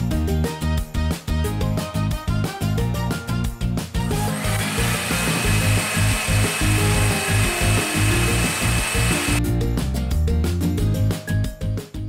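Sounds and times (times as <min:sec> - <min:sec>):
upbeat background music: 0:00.0 - 0:12.0
electric blender whirring: 0:04.1 - 0:09.4.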